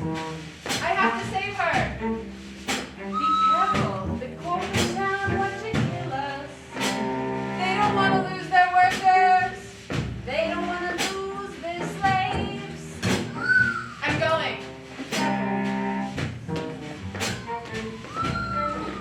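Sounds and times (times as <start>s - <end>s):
instrumental accompaniment: 0.0s - 19.0s
opera singing: 3.2s - 6.6s, 7.6s - 9.6s, 10.3s - 13.0s.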